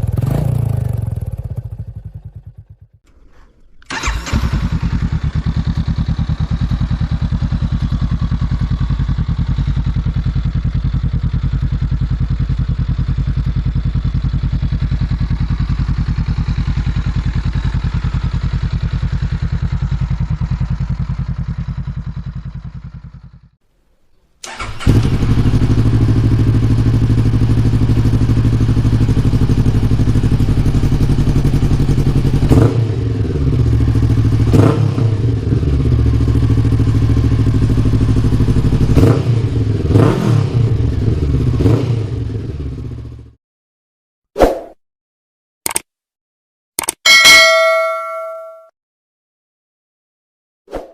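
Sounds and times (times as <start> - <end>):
motorcycle engine idling: 0.0 - 3.0, 3.9 - 23.6, 24.5 - 34.5, 35.3 - 39.8.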